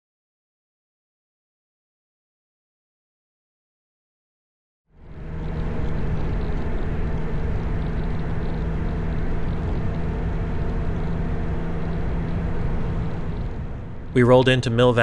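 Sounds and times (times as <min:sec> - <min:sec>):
wind and road noise: 0:04.9 - 0:15.0
motorcycle engine cruising: 0:05.0 - 0:14.4.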